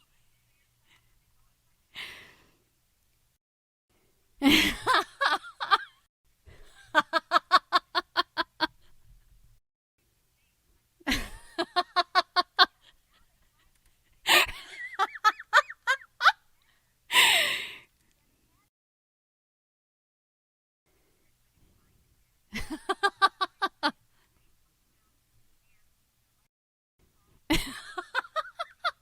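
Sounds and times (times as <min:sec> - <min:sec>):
woman laughing: 0:04.4 - 0:08.9, 0:11.1 - 0:12.9, 0:14.2 - 0:16.4, 0:17.1 - 0:17.7, 0:22.5 - 0:24.0, 0:27.5 - 0:29.0.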